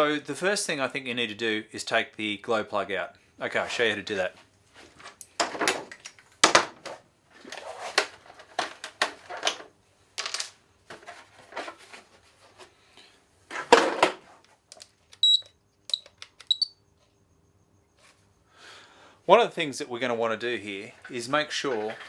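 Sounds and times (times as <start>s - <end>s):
tools and parts clattering: 4.8s - 12.7s, 13.5s - 15.4s, 21.1s - 22.0s
short high beeps: 15.2s - 16.8s.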